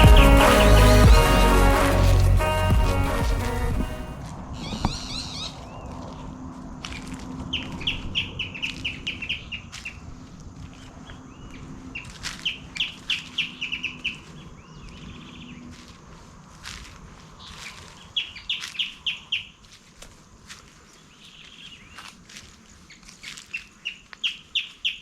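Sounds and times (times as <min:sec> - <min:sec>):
birds chirping rapidly: 0:04.6 - 0:06.3, 0:07.5 - 0:10.0, 0:22.8 - 0:25.0.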